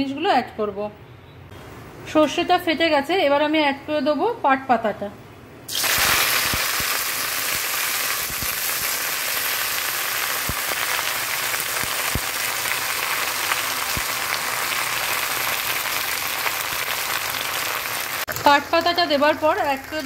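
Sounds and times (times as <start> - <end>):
leaves frying in hot oil: 5.7 - 20.0.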